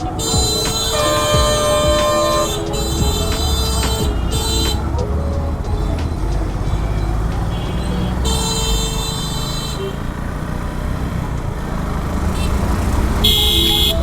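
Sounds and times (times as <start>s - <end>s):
high-pitched vehicle horn: 0.0s - 5.2s, 6.6s - 10.3s, 12.4s - 14.0s.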